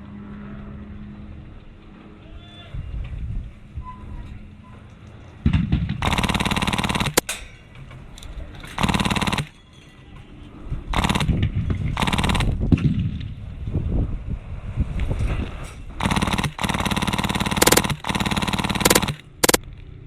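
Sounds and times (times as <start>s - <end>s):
airsoft machine gun bursts: 6.0s - 7.4s, 8.8s - 9.6s, 10.9s - 11.4s, 12.0s - 12.6s, 16.0s - 19.6s.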